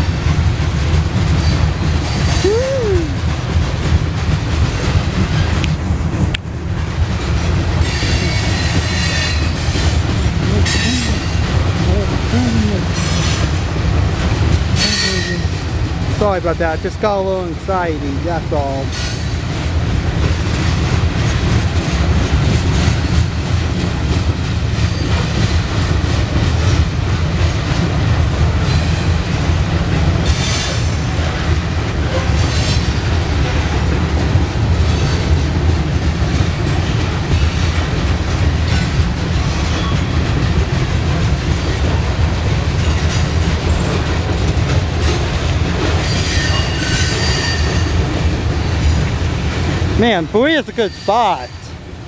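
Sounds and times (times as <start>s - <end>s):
freight train rumbling past: 0.0s - 52.0s
wheels clattering over rail joints: 3.2s - 51.8s
wheel flanges squealing: 7.8s - 12.3s, 46.0s - 49.1s.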